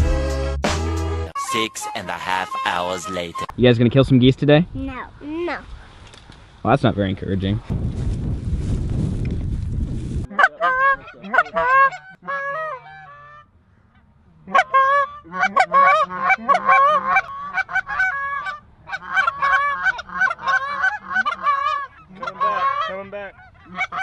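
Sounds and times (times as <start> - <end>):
geese honking: 1.4 - 3.5, 10.3 - 24.0
wind rumbling on microphone: 3.5 - 11.2.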